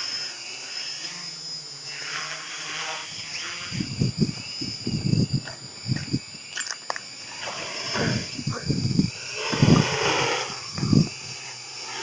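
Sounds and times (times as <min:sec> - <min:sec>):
drone propellers whining: 0:00.0 - 0:12.0
wind hiss: 0:02.5 - 0:12.0
wind gusts buffeting microphone: 0:03.7 - 0:06.5, 0:07.8 - 0:11.4.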